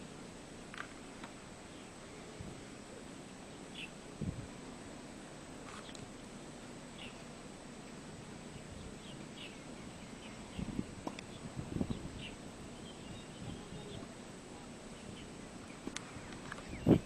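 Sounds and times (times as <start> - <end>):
birds chirping: 1.6 - 4.1, 6.8 - 17.0.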